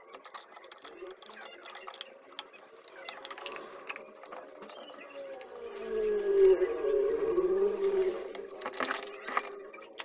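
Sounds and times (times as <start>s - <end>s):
parts clicking and scraping: 0.0s - 10.0s.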